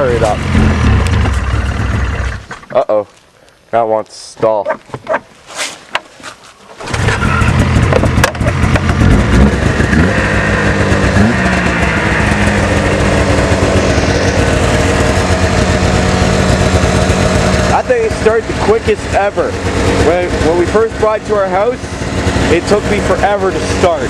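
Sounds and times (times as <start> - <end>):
snowmobile engine starting and running: 0.0 - 3.0, 6.6 - 24.0.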